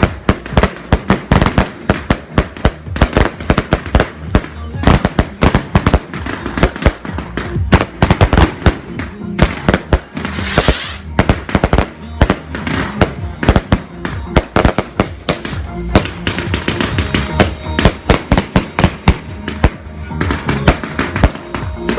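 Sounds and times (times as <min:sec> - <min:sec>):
fireworks bangs and crackles: 0:00.0 - 0:21.9
fireworks hiss: 0:09.8 - 0:11.7.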